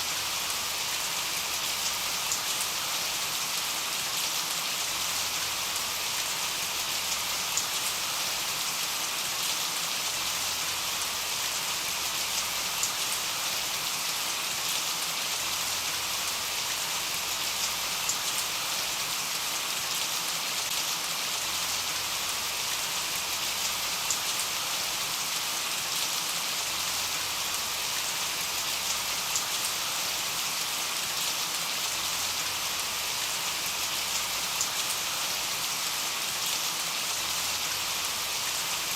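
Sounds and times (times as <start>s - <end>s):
steady rain hiss: 0.0s - 38.9s
rain drop ticks: 34.2s - 34.9s.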